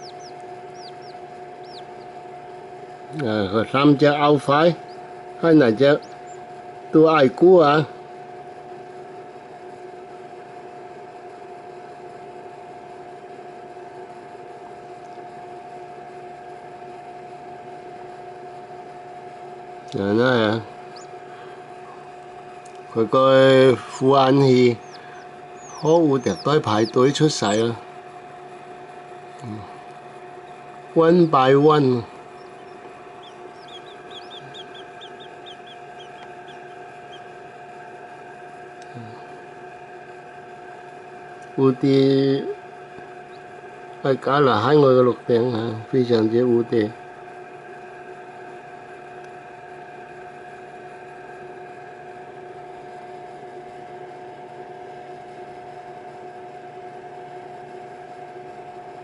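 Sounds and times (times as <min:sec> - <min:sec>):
chicks peeping: 0:00.0 - 0:02.4, 0:03.7 - 0:06.6, 0:20.4 - 0:22.1, 0:23.4 - 0:27.8, 0:30.4 - 0:37.9
electrical hum with soft hiss: 0:00.0 - 0:59.0.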